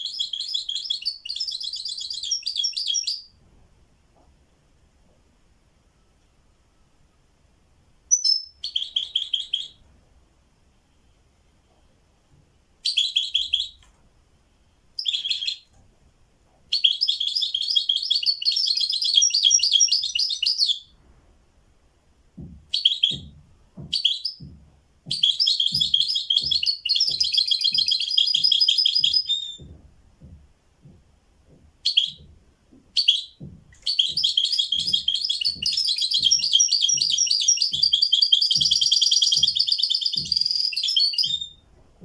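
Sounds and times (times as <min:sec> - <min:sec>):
songbird singing: 0:00.0 - 0:03.4, 0:08.1 - 0:09.8, 0:12.8 - 0:13.9, 0:15.0 - 0:15.8, 0:16.7 - 0:21.0, 0:22.4 - 0:41.7
soft low knocking: 0:21.0 - 0:42.0.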